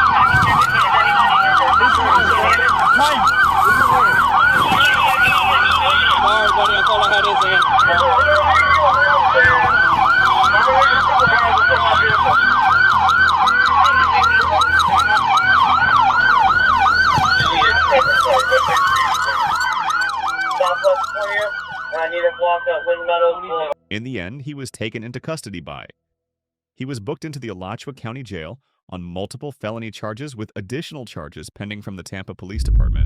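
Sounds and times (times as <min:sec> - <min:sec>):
police sirens yelping: 0:00.0 - 0:23.6.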